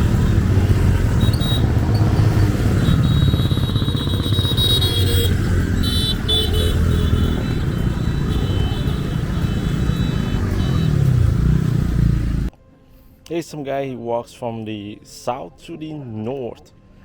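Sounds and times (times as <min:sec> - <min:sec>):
motorbike engine running: 0:00.0 - 0:12.5.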